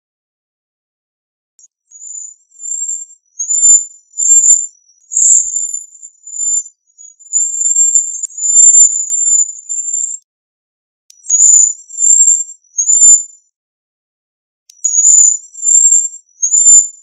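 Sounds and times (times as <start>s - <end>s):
bird high thin whistled calls: 1.9s - 10.2s, 11.2s - 13.4s, 14.8s - 17.0s.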